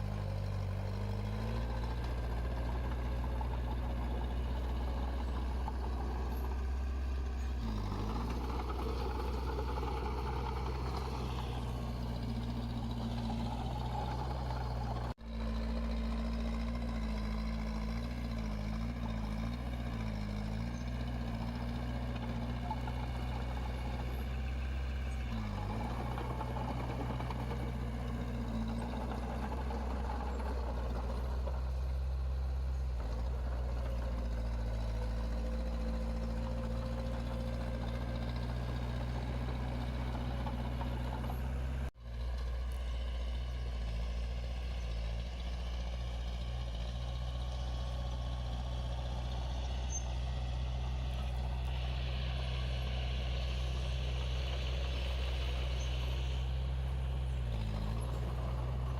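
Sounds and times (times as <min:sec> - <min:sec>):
heavy machinery diesel engine: 0:00.0 - 0:58.9.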